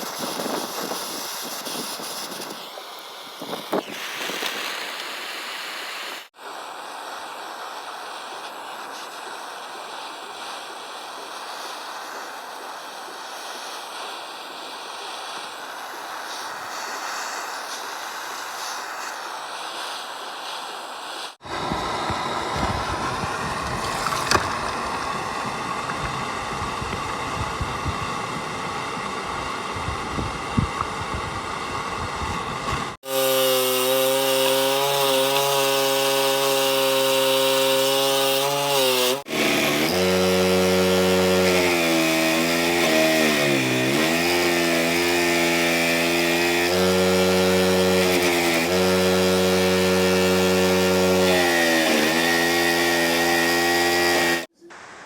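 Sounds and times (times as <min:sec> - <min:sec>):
power tool rasping: 0:00.0 - 0:02.7, 0:21.4 - 0:54.5
power tool motor whine: 0:21.4 - 0:54.5.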